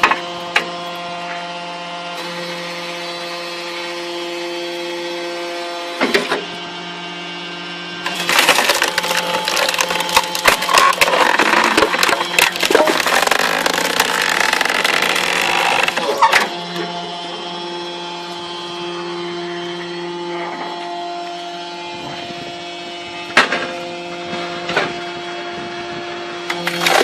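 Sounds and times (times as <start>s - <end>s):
firewood processor humming: 0.0s - 27.0s
log splitting and cracking: 8.0s - 16.6s, 26.5s - 27.0s.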